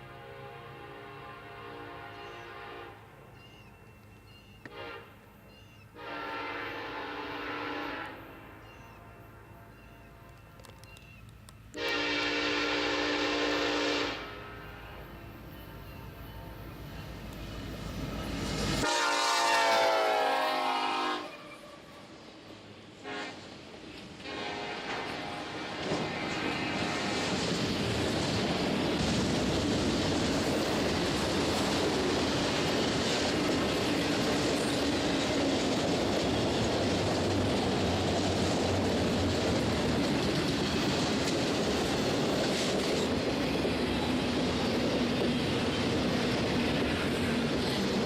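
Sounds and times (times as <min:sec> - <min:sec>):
train wheels clattering on rails: 0:24.9 - 0:48.0.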